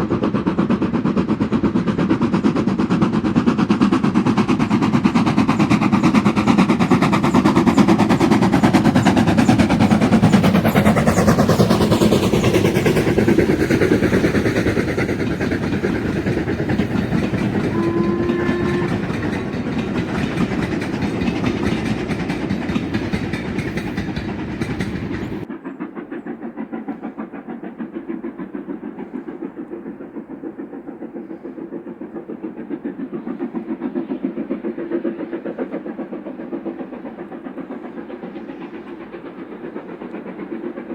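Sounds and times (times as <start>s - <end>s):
steam train chuffing: 0.0s - 40.9s
train wheel clatter: 0.0s - 40.9s
train whistle: 15.5s - 19.8s.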